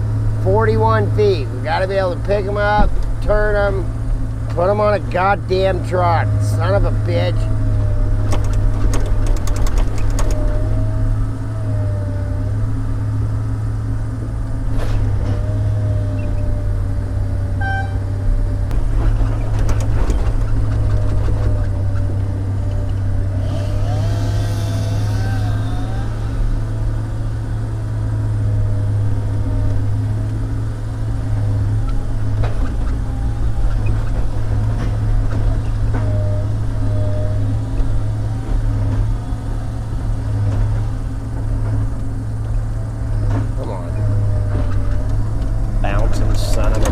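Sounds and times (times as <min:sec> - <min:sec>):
diesel engine droning: 0:00.0 - 0:46.9
hydraulic whine: 0:14.2 - 0:46.9
short beep: 0:17.6 - 0:18.1.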